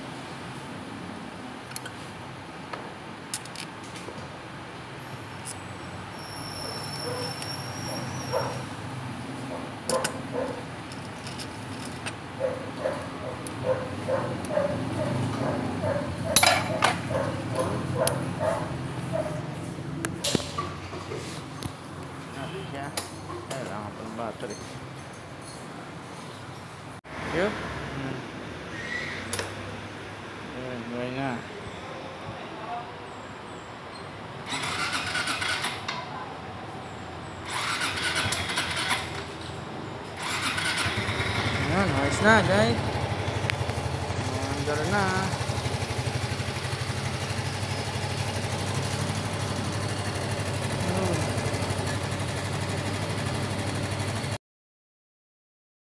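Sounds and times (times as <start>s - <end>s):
dog barking: 7.0s - 8.7s, 9.5s - 10.6s, 12.4s - 19.5s
motorcycle electric starter cranking: 34.4s - 35.9s, 37.5s - 39.3s, 40.2s - 42.6s.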